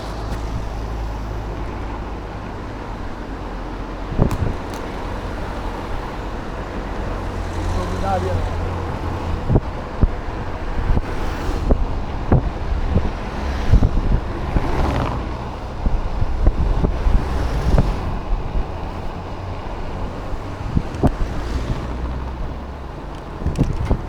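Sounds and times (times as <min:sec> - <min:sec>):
wind buffeting microphone: 0:00.0 - 0:24.0
thumps and knocks: 0:04.2 - 0:05.1, 0:23.1 - 0:24.0.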